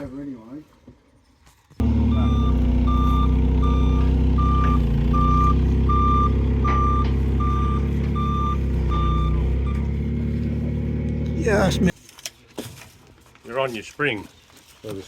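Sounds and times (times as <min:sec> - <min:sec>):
truck reversing alarm beeping: 0:01.8 - 0:10.9
diesel engine running: 0:01.8 - 0:11.9.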